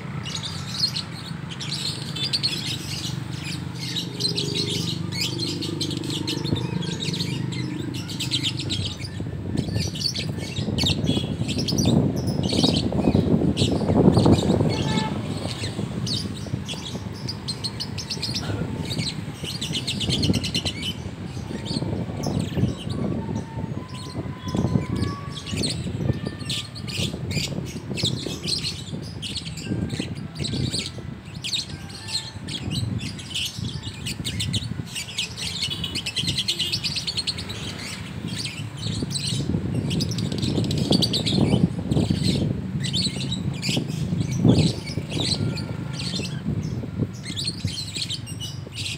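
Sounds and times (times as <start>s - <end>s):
lovebirds chattering shrilly: 0.0s - 48.9s.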